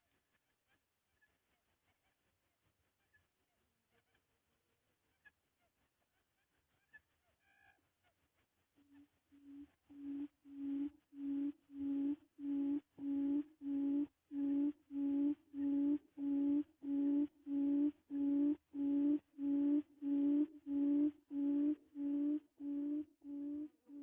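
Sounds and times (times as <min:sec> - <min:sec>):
quail hooting: 0:09.4 - 0:24.0.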